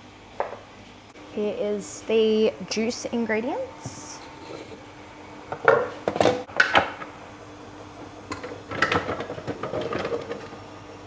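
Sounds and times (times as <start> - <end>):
utensils clattering on countertop: 3.8 - 4.8, 5.5 - 7.2, 7.8 - 10.7.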